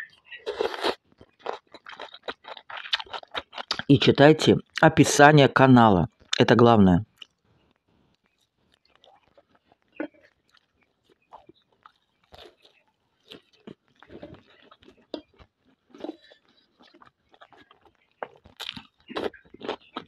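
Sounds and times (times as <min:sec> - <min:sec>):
person biting and chewing: 0:00.4 - 0:03.9, 0:08.4 - 0:20.0.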